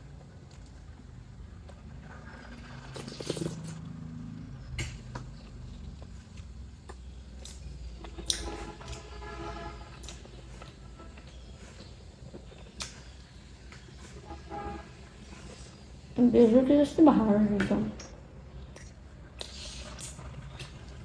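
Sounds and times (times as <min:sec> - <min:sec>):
person chewing food: 0:01.5 - 0:09.2, 0:09.8 - 0:14.2, 0:18.6 - 0:21.0.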